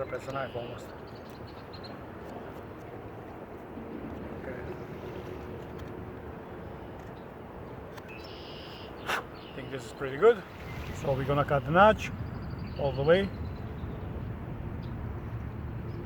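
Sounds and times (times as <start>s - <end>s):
wind: 0.0s - 16.0s
waves on lakeshore: 8.6s - 13.4s.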